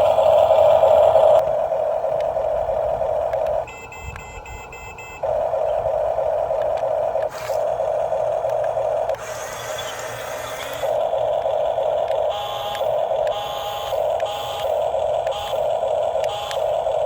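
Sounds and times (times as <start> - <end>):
toy electric motor whining: 2.8 - 17.0
short electronic beeps: 3.6 - 5.8, 12.2 - 17.0.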